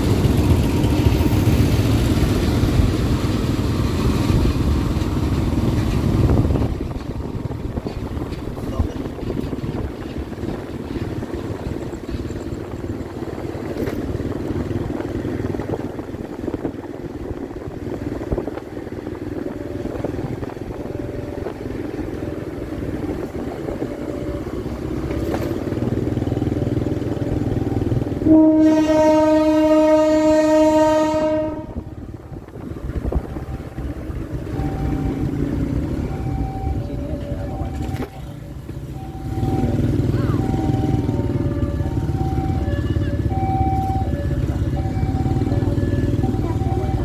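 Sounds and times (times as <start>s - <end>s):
train rumbling: 0.0s - 47.0s
train horn blast: 28.1s - 32.0s.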